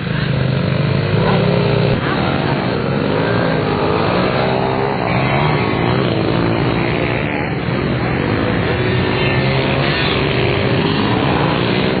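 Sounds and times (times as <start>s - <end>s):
small motorbike engine revving: 0.0s - 12.0s.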